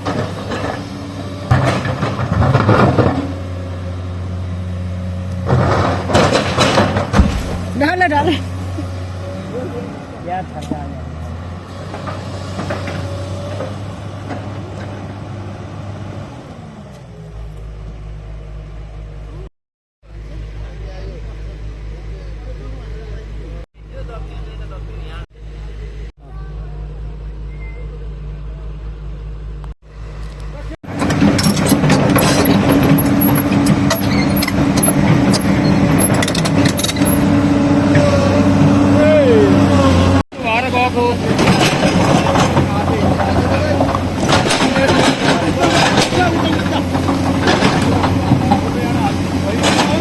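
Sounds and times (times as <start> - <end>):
excavator diesel engine running: 0.0 - 19.5, 20.1 - 50.0
metallic clanks and clicks: 31.0 - 37.2, 41.4 - 48.8, 49.6 - 50.0
short high squeaks: 33.0 - 37.3.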